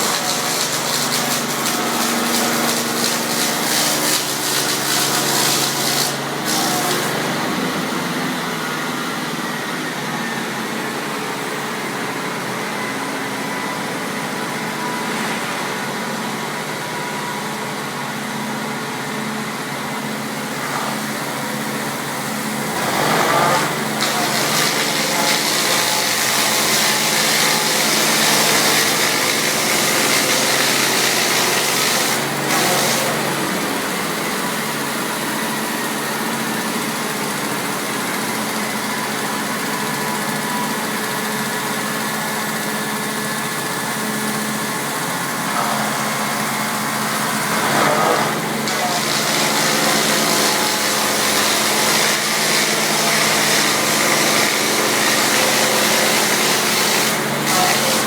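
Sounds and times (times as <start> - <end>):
log-rounding machine humming: 0.0 - 58.0.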